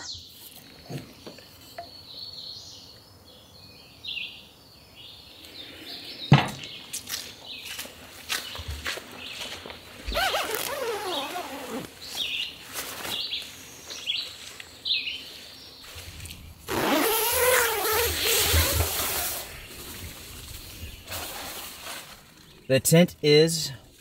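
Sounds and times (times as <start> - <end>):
tent fabric rustling: 8.4 - 14.6, 15.3 - 22.6.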